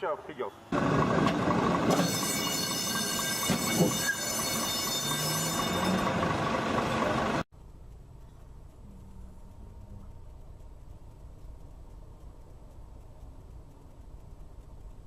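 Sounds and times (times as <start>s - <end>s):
traffic noise: 0.0s - 15.0s
steady high whine: 7.6s - 15.0s.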